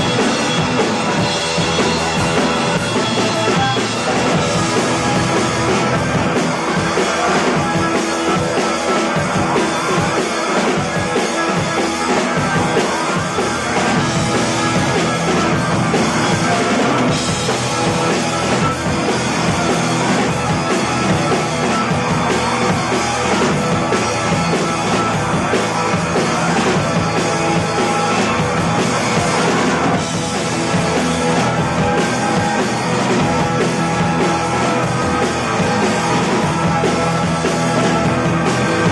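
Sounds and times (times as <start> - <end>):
drum kit: 0.0 - 38.9
rock band playing live: 0.0 - 38.9.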